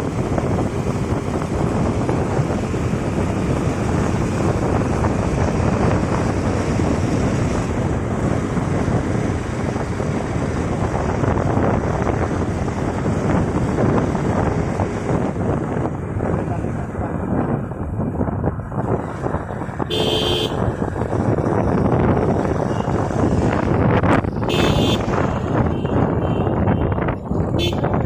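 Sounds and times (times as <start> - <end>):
wind rushing over microphone: 0.0 - 28.0.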